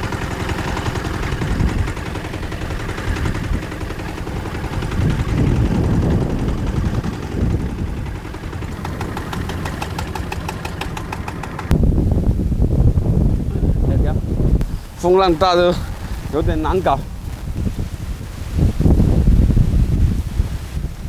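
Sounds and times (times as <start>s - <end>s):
fast even ticking: 0.0s - 11.8s
boat engine running: 0.0s - 21.0s
wind buffeting microphone: 0.0s - 21.0s.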